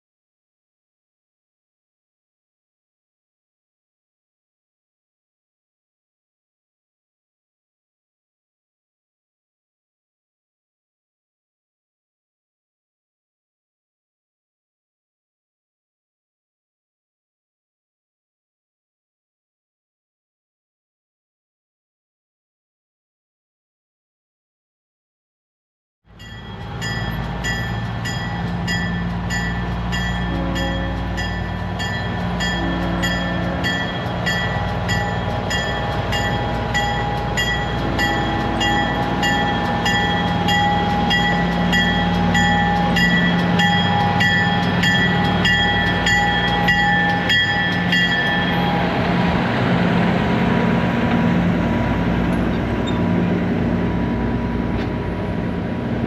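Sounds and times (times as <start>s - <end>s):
diesel locomotive running: 26.1s - 56.0s
bell ringing: 26.2s - 49.0s.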